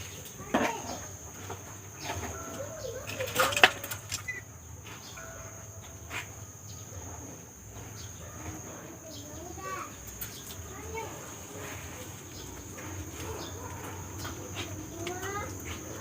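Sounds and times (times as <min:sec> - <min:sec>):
birds calling: 0:06.7 - 0:16.0.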